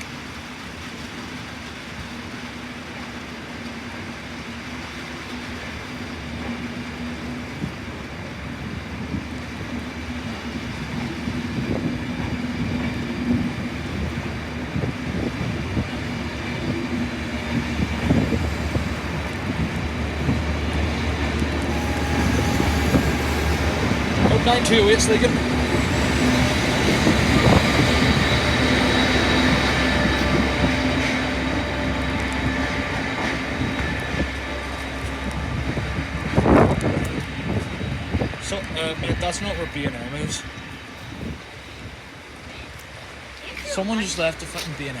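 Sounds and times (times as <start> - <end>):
train engine hum and rumble: 0.0 - 45.0.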